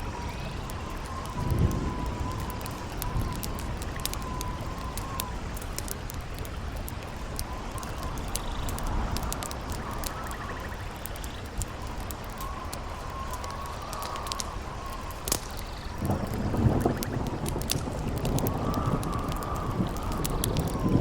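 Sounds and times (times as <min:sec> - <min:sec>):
thunder rumble: 0:00.0 - 0:06.5, 0:11.9 - 0:21.0
campfire crackling and popping: 0:00.0 - 0:21.0
howling wind: 0:00.0 - 0:21.0.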